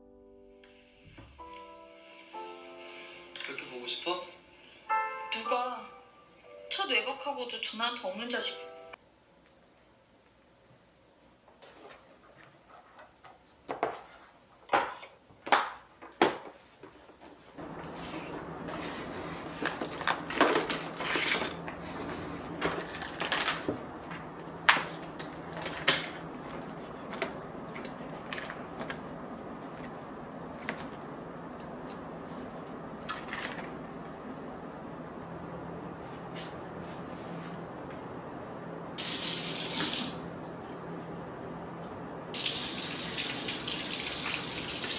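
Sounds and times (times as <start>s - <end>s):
steady low hum: 17.6s - 39.0s.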